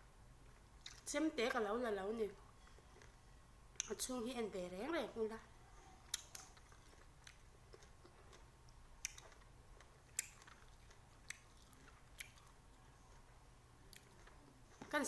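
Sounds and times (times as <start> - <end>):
person chewing with mouth clicks: 0.5 - 1.1, 6.0 - 14.9.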